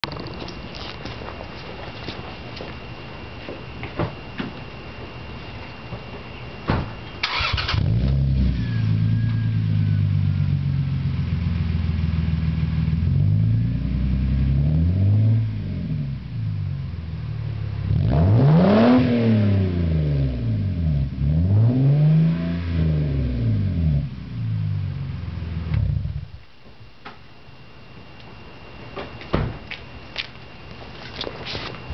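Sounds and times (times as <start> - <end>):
car engine cranking: 7.2 - 9.0
car engine idling and revving: 7.3 - 26.4.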